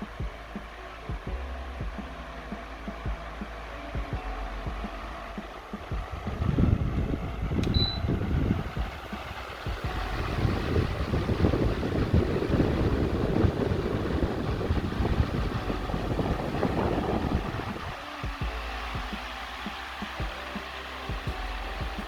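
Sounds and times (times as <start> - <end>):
fan blowing air onto microphone: 0.0 - 22.0
short high beep: 7.7 - 8.2.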